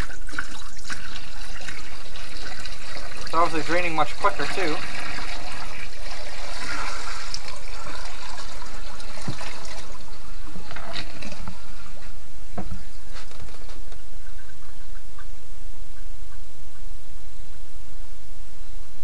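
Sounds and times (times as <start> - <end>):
water rushing down drain: 0.0 - 13.2.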